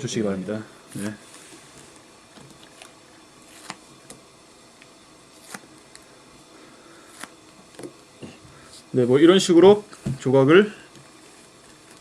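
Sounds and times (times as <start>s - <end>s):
paper card tearing: 2.7s - 3.8s, 5.4s - 5.7s.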